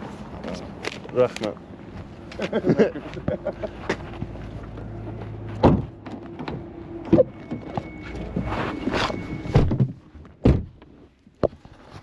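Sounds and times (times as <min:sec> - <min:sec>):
car humming: 0:01.6 - 0:09.7.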